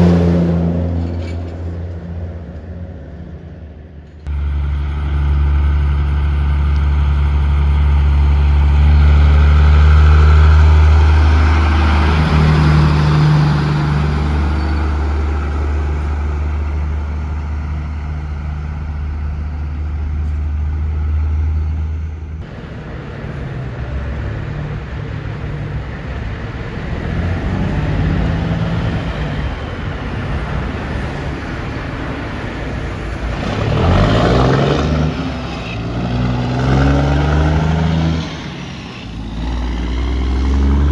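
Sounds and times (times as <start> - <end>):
passing traffic: 0.0 - 40.9
truck engine drone: 0.0 - 40.9
engine revving up: 4.3 - 17.3, 26.6 - 31.4, 32.8 - 40.9.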